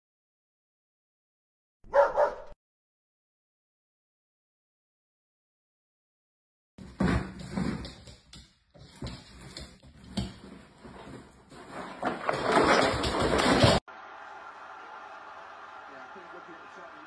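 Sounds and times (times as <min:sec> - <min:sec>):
cardboard box scraping on wooden floor: 0:06.8 - 0:08.1, 0:08.8 - 0:13.6
cardboard rustling: 0:09.0 - 0:13.8.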